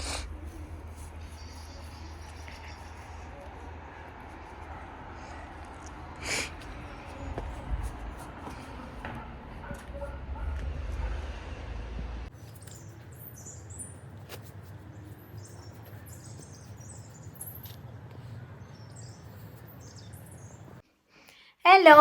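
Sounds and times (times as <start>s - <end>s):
low rumble: 0.0s - 12.3s
small birds chirping: 12.3s - 20.8s.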